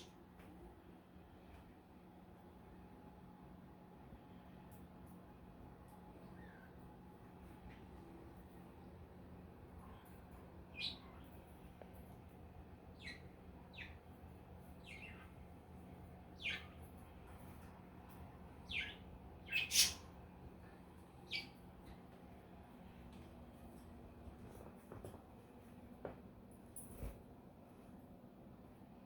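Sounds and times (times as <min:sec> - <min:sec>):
budgerigars chirping: 0:16.4 - 0:16.7, 0:18.7 - 0:20.0.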